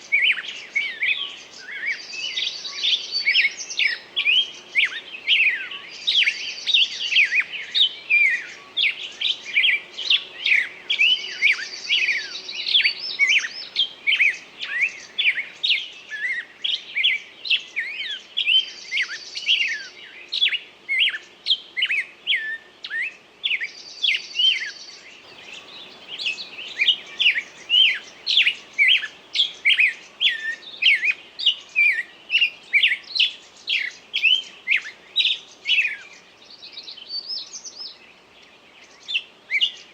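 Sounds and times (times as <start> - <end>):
songbird chirping: 0.0 - 16.0, 24.0 - 39.9
buzzy bird trill: 25.3 - 30.8.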